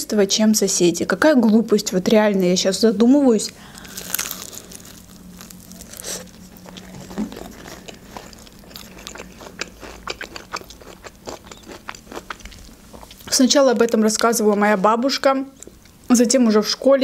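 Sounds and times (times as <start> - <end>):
crunchy chewing: 3.4 - 14.7.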